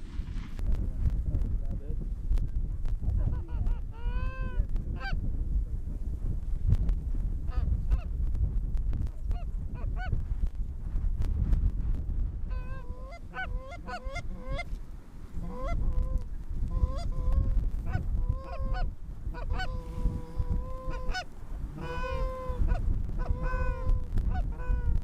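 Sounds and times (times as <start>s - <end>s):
geese honking: 12.5s - 14.8s, 15.4s - 25.0s.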